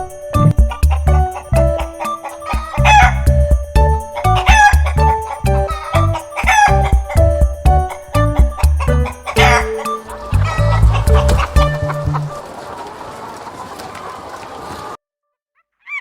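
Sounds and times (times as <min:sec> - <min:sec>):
background music with steady beat: 0:00.0 - 0:12.3
rooster crowing: 0:00.7 - 0:03.3, 0:04.1 - 0:06.9, 0:08.8 - 0:15.0.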